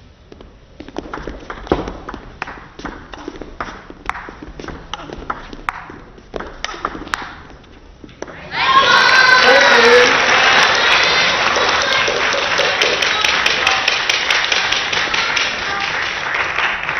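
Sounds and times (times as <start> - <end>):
ping pong ball on rackets and table: 0.8 - 8.4
crowd applause: 8.3 - 16.9.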